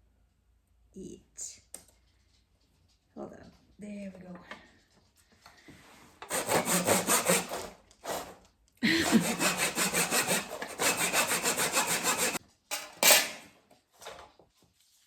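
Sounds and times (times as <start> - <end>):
handsaw cutting wood: 6.2 - 12.4.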